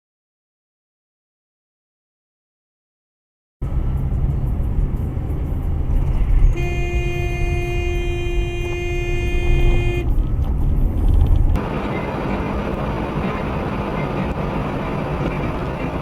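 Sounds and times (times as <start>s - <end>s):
road and engine rumble: 3.6s - 16.0s
car horn blast: 6.6s - 10.1s.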